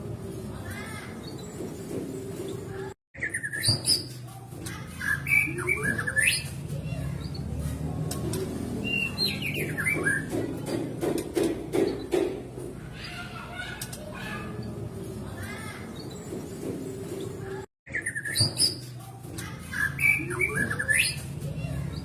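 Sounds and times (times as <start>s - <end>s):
bird singing whistled notes: 8.8s - 10.0s.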